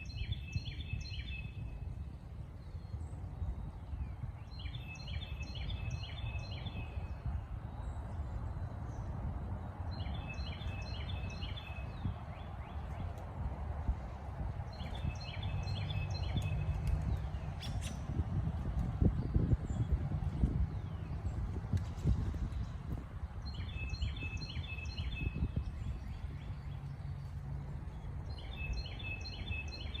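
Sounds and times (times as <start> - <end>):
songbird singing: 0.0 - 30.0
steady low rumble: 1.0 - 30.0.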